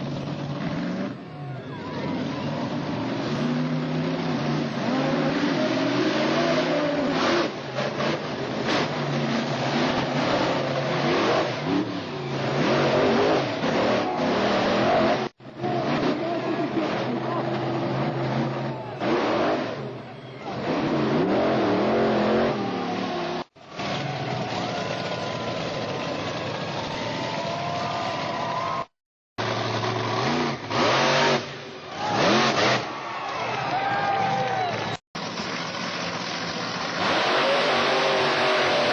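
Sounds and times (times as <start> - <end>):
monster truck engine revving: 0.0 - 38.9.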